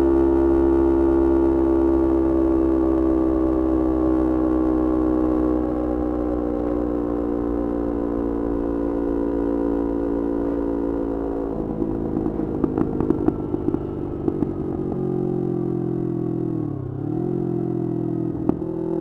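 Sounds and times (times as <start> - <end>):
motorcycle engine running: 0.0 - 19.0
exhaust backfire pops: 11.6 - 15.3, 18.4 - 19.0.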